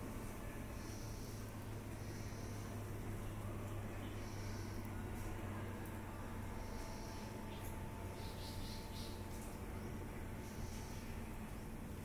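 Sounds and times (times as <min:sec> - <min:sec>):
steady low hum: 0:00.0 - 0:12.0
faint high bird chirps: 0:06.6 - 0:09.2.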